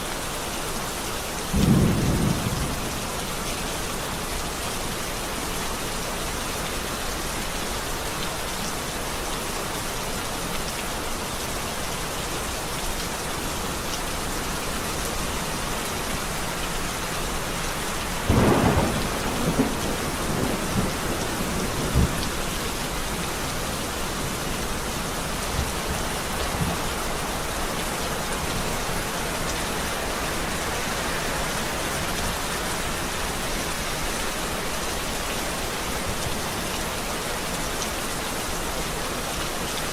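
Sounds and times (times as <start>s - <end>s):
steady rain falling: 0.0s - 39.9s
thunder clap and rumble: 1.6s - 3.0s, 18.2s - 22.5s.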